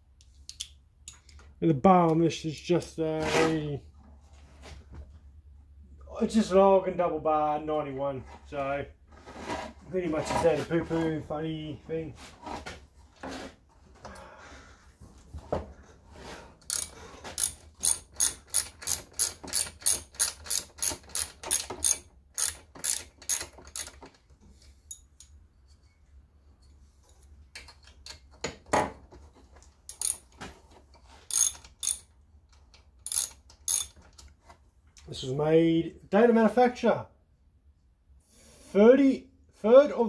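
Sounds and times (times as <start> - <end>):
ratchet wrench clicking: 16.7 - 24.0, 29.9 - 30.2, 31.3 - 32.1, 33.0 - 34.0.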